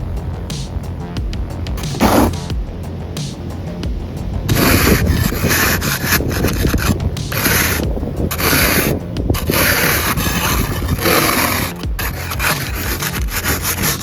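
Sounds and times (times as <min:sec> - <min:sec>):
snow brush sweeping snow off car: 0:01.8 - 0:02.5, 0:04.5 - 0:14.0.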